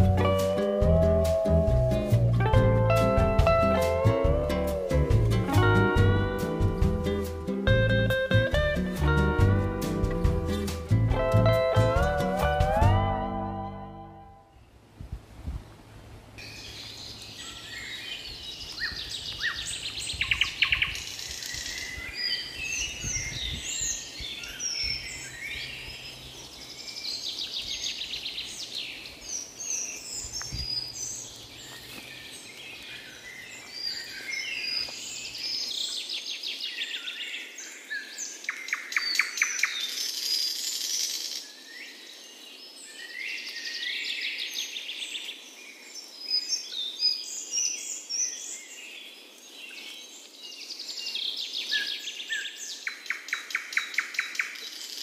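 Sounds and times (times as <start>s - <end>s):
forest birds singing and calling: 16.4s - 55.0s.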